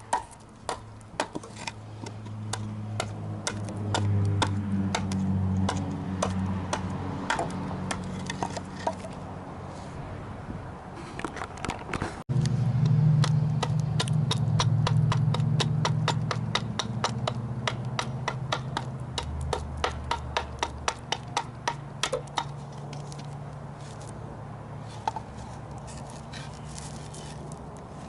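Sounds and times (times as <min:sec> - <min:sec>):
mallet striking chisel into wood: 0:13.2 - 0:22.6.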